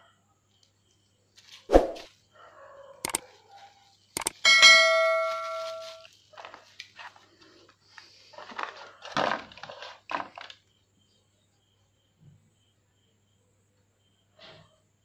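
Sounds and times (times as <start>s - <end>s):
ringing chime: 4.4s - 6.1s
plastic packaging crinkling: 5.4s - 10.6s.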